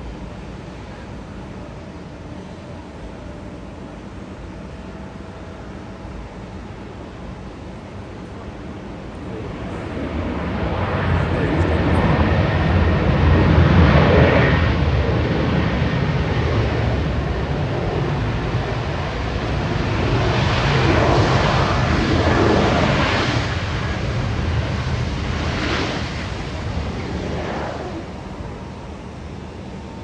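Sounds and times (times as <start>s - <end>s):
jet engine rushing: 7.9s - 30.0s.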